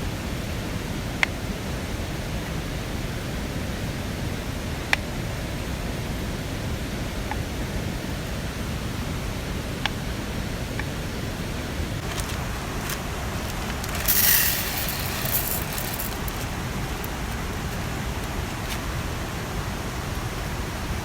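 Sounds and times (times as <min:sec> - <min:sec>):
short hiss: 0:12.3 - 0:17.2.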